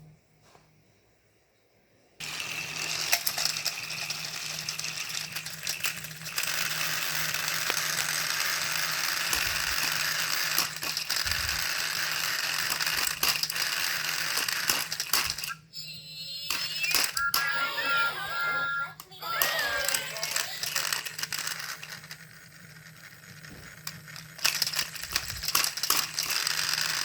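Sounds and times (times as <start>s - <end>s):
toy train clicks: 2.2s - 15.6s, 19.0s - 27.0s
toy train motors whirring: 2.2s - 27.0s.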